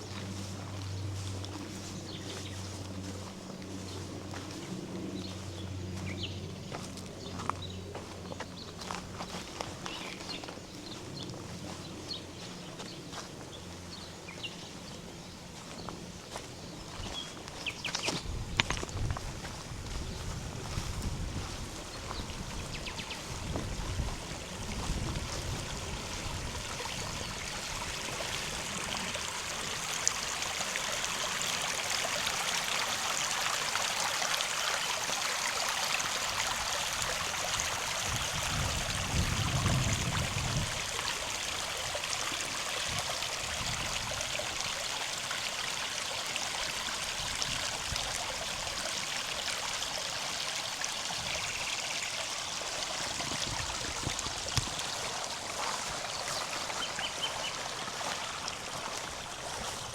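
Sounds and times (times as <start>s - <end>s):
river flowing over stones: 21.8s - 59.9s.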